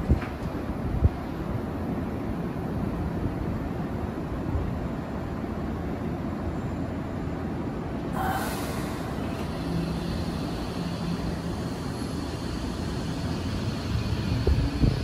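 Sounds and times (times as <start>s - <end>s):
air hiss: 8.2s - 14.9s
electric train pulling away: 8.2s - 15.0s.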